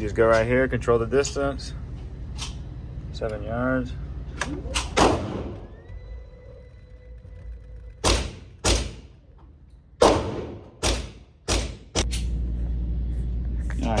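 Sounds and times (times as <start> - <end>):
target carrier motor humming: 0.0 - 10.0
gunshots ringing indoors: 4.8 - 5.7, 8.0 - 9.2, 10.0 - 12.2.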